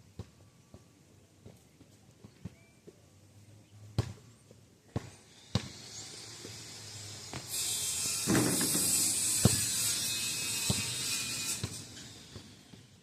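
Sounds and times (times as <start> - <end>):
basketball bouncing on pavement: 0.1 - 3.0, 4.0 - 5.8, 8.3 - 9.7, 10.7 - 11.0.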